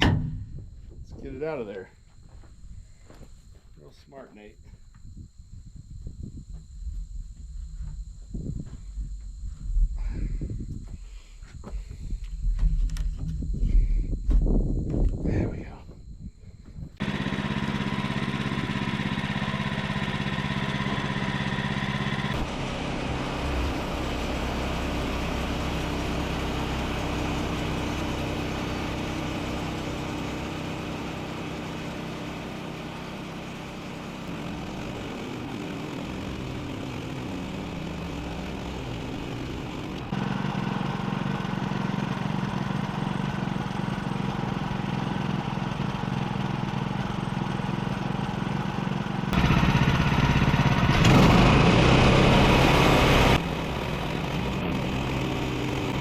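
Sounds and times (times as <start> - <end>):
sawmill gas engine running: 17.0 - 56.0.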